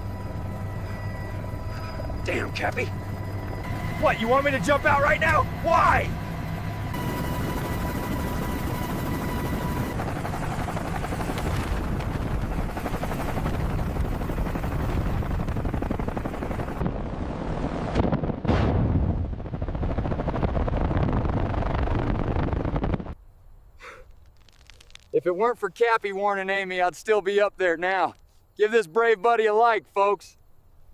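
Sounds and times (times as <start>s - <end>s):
steady high tone: 0.0s - 10.4s
helicopter rotor and engine: 0.0s - 17.9s, 19.6s - 23.2s.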